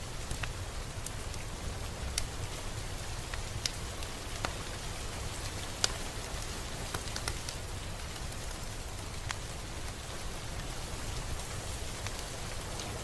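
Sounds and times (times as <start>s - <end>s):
raindrops ticking on a surface: 0.0s - 13.0s
steady rain: 0.0s - 13.0s.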